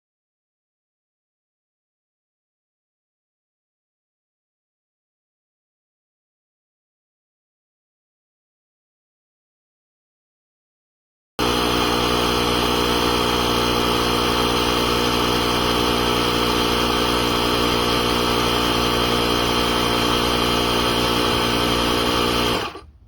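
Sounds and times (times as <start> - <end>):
motor humming with rattly buzz: 11.4 - 23.0.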